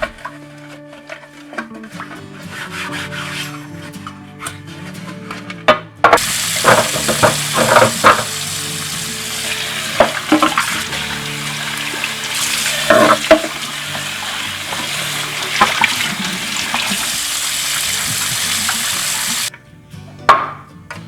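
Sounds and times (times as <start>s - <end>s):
knocks in sink: 6.2s - 8.4s, 12.4s - 13.6s
tap running into sink: 6.2s - 19.5s.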